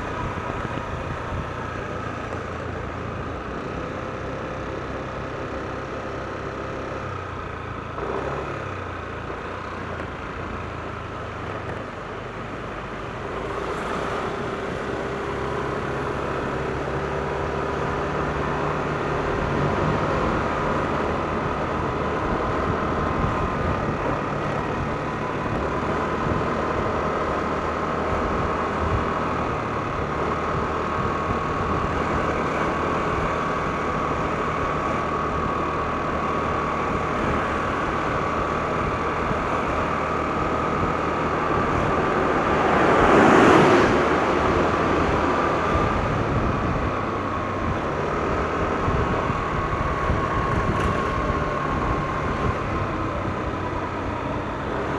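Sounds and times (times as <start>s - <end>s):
road noise: 0.0s - 54.9s
scooter engine whine: 0.0s - 54.9s.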